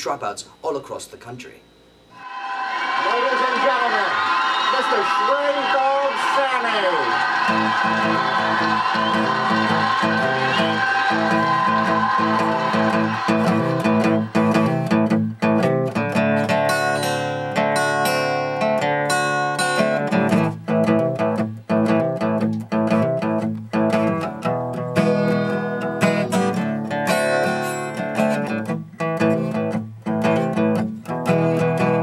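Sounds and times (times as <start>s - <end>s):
acoustic guitar strumming blues: 7.1s - 32.0s.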